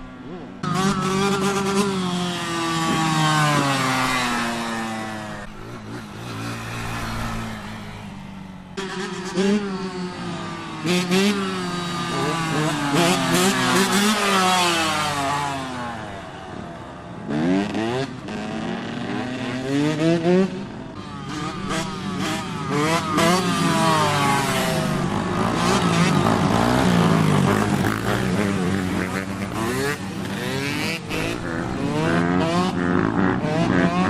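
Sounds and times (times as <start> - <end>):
small motorcycle engines revving: 0.0 - 34.0.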